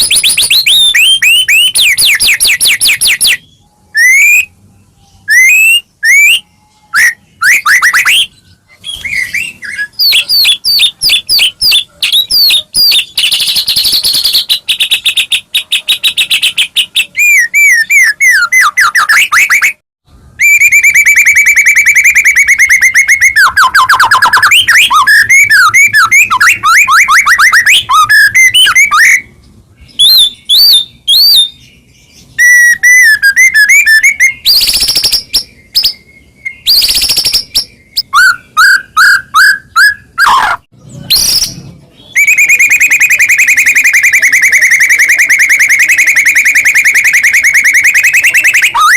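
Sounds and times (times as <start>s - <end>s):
bird singing whistled song: 0.0s - 48.9s.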